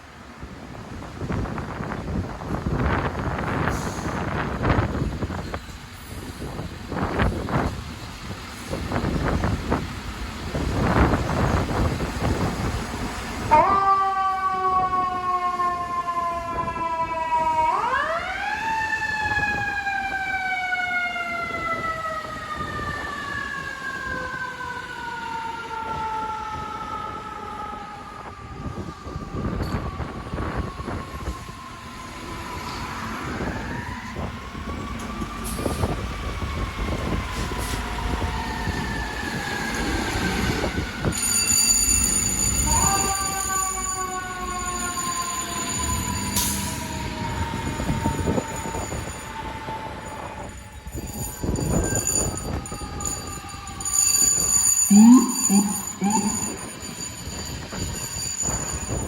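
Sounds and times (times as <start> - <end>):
truck engines rumbling: 1.8 - 13.8, 28.4 - 59.0
mechanical siren winding: 51.8 - 57.2.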